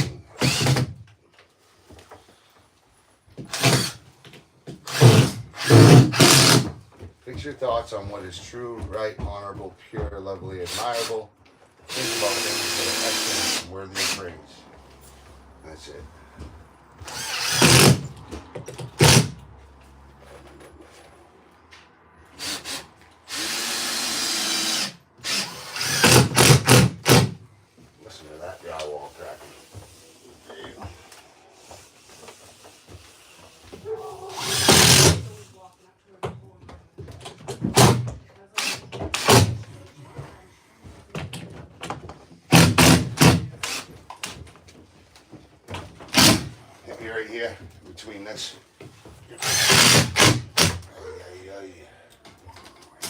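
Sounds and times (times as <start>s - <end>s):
power tool running against drywall: 0.0s - 0.9s, 3.5s - 4.0s, 4.8s - 6.7s, 11.9s - 14.2s, 17.0s - 18.1s, 19.0s - 19.4s, 22.4s - 27.4s, 34.3s - 35.4s, 38.6s - 39.6s, 42.5s - 44.0s, 46.1s - 46.5s, 49.4s - 50.8s
knocks on wood and drywall: 4.6s - 7.5s, 25.3s - 27.4s, 37.0s - 38.2s, 41.1s - 43.7s, 45.7s - 46.6s.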